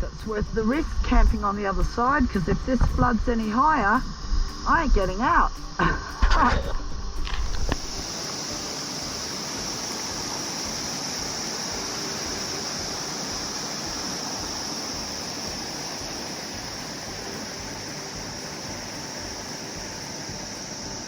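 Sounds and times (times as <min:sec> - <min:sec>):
flooded river rushing: 0:07.3 - 0:21.0.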